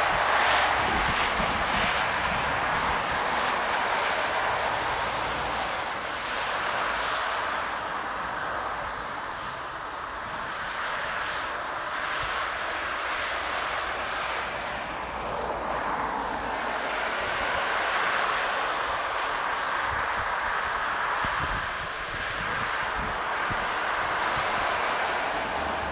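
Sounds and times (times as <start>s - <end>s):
wind rumbling on microphone: 0.0s - 6.4s, 16.8s - 25.9s
jet engines: 0.0s - 25.9s.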